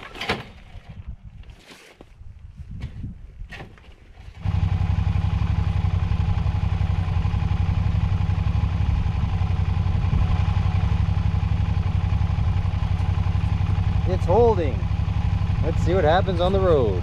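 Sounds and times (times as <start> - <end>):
motorcycle engine idling: 4.4 - 17.0.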